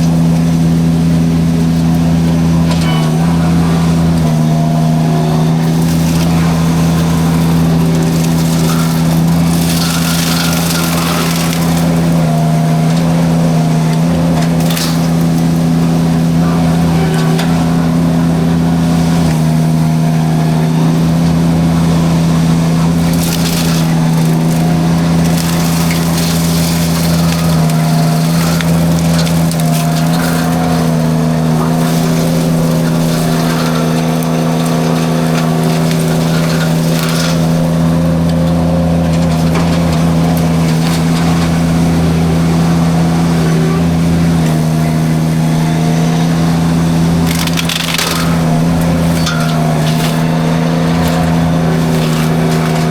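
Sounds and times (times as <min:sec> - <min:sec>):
skid steer engine droning: 0:00.0 - 0:52.9
wood crackling and snapping: 0:00.0 - 0:52.9.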